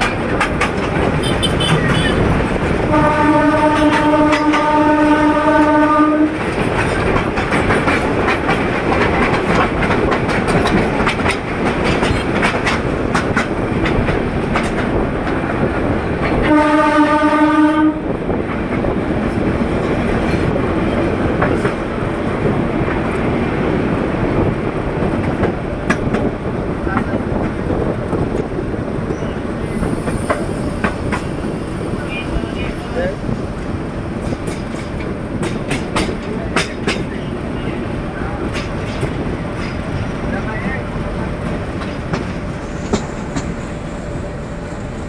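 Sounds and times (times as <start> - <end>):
train rumbling on track: 0.0 - 45.0
train horn: 1.2 - 6.6, 16.4 - 18.1.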